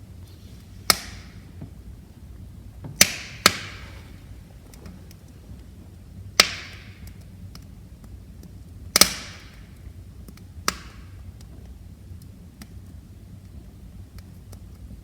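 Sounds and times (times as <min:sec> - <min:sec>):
burning logs popping: 0:00.0 - 0:15.0
low rumble of flames: 0:00.0 - 0:15.0
wood fire crackling: 0:00.0 - 0:15.0.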